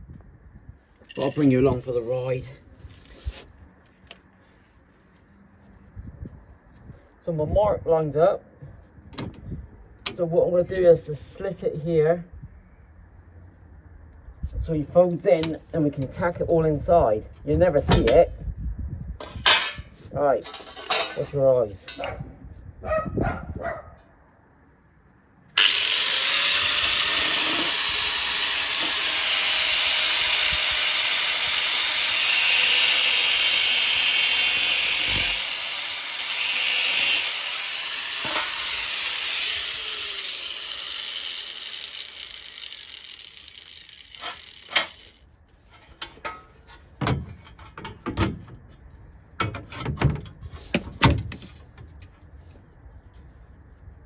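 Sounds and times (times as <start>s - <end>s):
angle grinder cutting steel: 25.6s - 45.2s
metal knocks and clatter: 45.8s - 48.6s.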